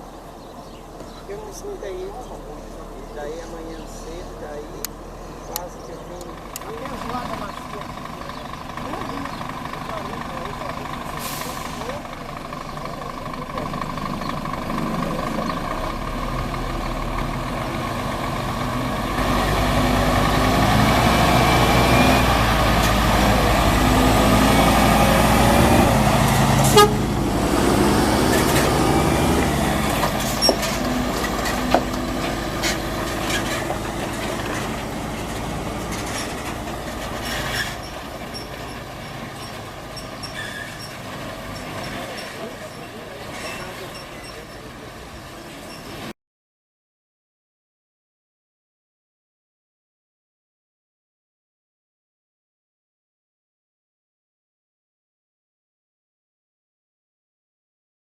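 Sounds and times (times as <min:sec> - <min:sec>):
truck diesel engine under load: 0:00.0 - 0:46.2.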